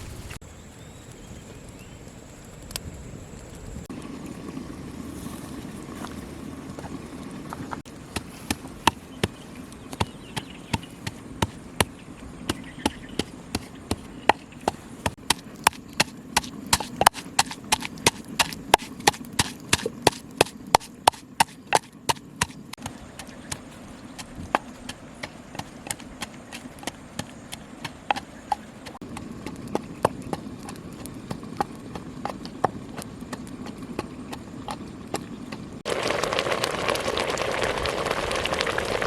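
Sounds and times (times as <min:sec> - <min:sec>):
knife chopping on wooden board: 0:10.0 - 0:30.8.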